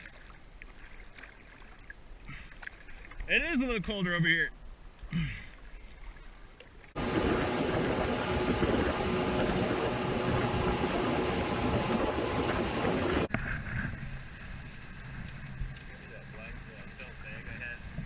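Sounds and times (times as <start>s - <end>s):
rushing wind and water: 0.0s - 18.0s
motorboat engine: 7.0s - 18.0s.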